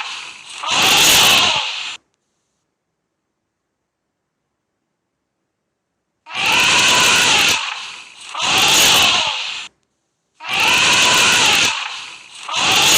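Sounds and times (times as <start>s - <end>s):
elephant trumpeting: 0.0s - 2.0s, 6.3s - 9.7s, 10.4s - 12.9s.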